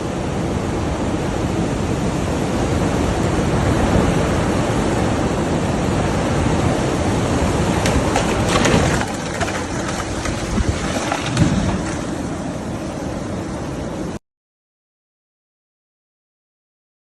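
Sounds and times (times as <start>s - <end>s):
rain and wind rushing: 0.0s - 14.2s
scattered crackles: 7.8s - 12.3s.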